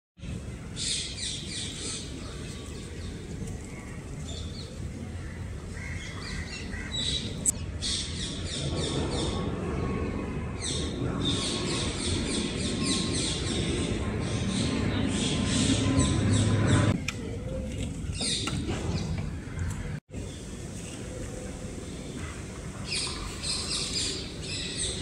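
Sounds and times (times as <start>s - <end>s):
small birds chirping: 10.6s - 25.0s.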